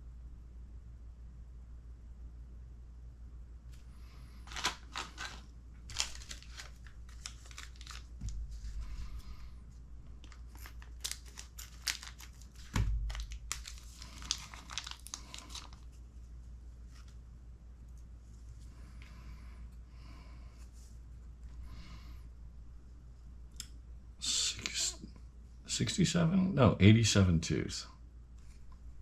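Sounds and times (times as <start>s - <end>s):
plastic bag crinkling and tearing: 4.4s - 9.2s, 10.2s - 16.0s.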